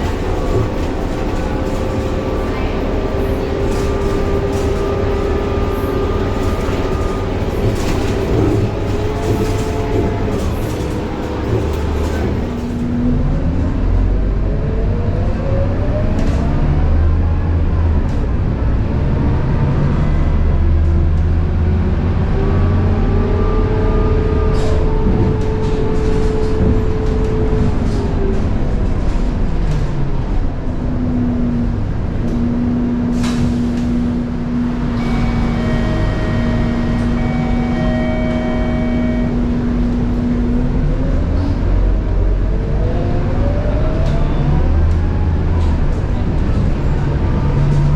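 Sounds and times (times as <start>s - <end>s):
bus gearbox whine: 0.0s - 12.9s, 34.8s - 40.5s
diesel engine rumble: 0.0s - 47.9s.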